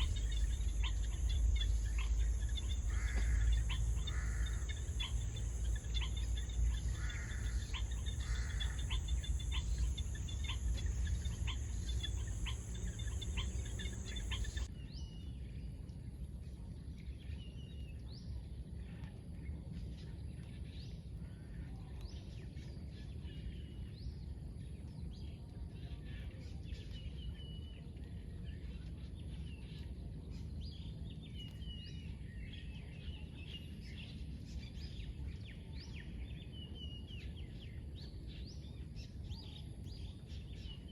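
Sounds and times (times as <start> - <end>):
bird chirps: 0.0 - 14.7
high insect buzz: 0.0 - 14.7
low rumble: 0.0 - 14.7.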